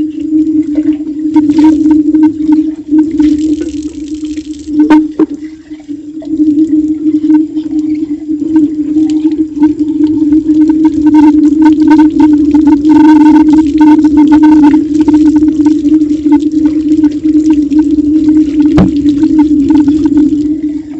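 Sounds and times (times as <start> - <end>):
steady low hum: 0.0 - 20.9
water running from tap: 1.4 - 7.9, 10.7 - 20.6.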